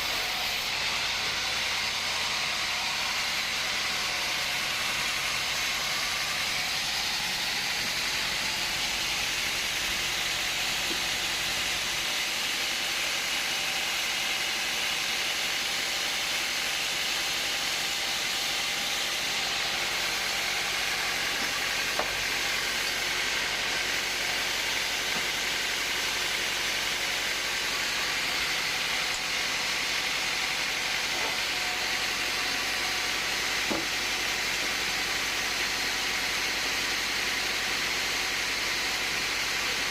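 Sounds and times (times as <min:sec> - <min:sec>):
woodworking machinery hissing: 0:00.0 - 0:39.9.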